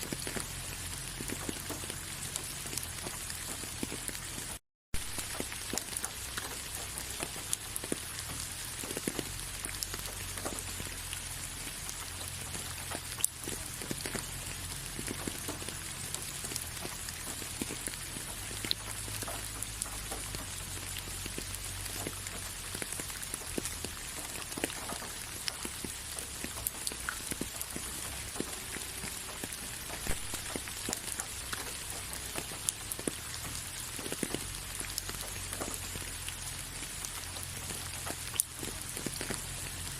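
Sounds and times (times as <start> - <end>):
steady rain falling: 0.0 - 39.9
loud raindrop hit: 12.0 - 36.2.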